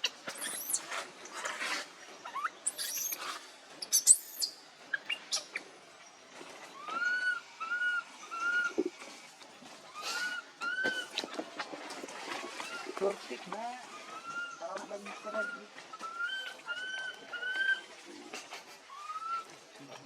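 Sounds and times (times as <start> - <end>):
baby monkey squealing: 0.0 - 1.0, 2.2 - 5.6, 9.9 - 11.2, 14.0 - 17.9.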